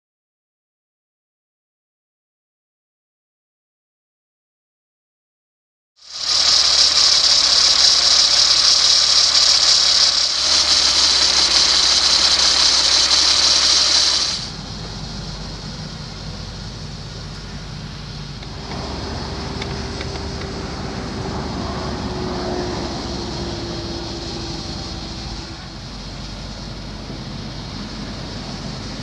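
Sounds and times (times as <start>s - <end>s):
loud high hiss: 6.0s - 29.0s
diesel truck engine idling: 6.1s - 29.0s.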